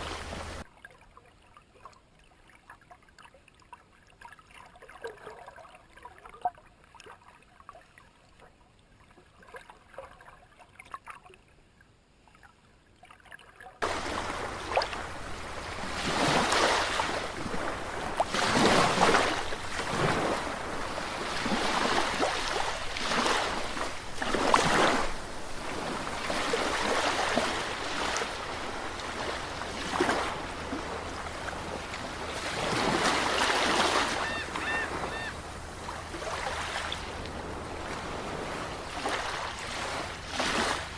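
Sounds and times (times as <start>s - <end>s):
waves washing in: 0.0s - 0.7s, 13.8s - 40.9s.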